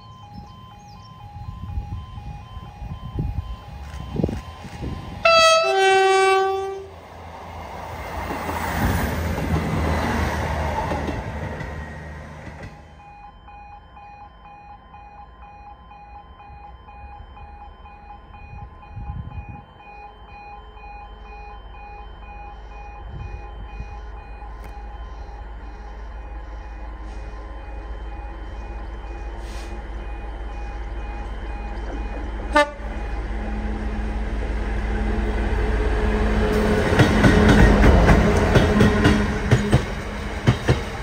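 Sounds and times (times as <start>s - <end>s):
level crossing alarm pulsing: 0.0s - 7.3s, 12.5s - 41.0s
train wheel noise rushing: 26.3s - 41.0s.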